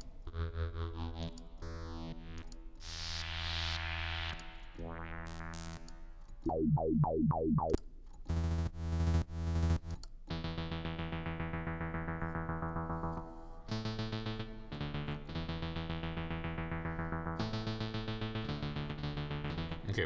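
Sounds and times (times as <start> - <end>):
synthesizer chords: 0.0 - 20.0
synthesizer falling zaps: 2.8 - 7.9
pulsing synth pattern: 6.5 - 7.8.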